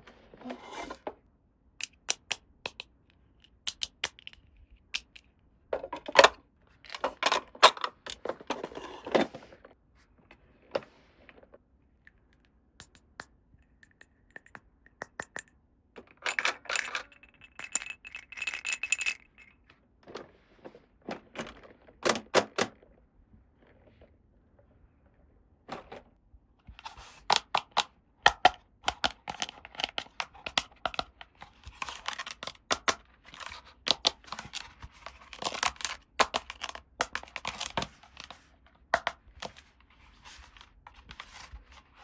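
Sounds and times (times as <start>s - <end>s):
plastic toy pieces clicking: 1.8s - 5.3s.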